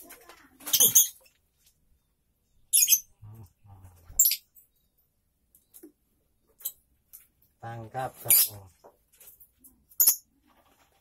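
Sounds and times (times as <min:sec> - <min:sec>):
small bird chirp: 0:02.0 - 0:06.9.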